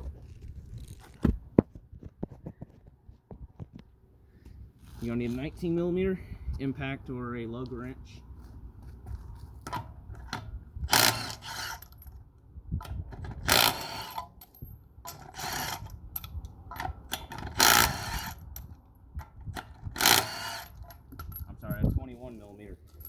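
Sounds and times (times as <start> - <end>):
wrench ratcheting clicks: 12.8 - 18.7, 19.6 - 21.4.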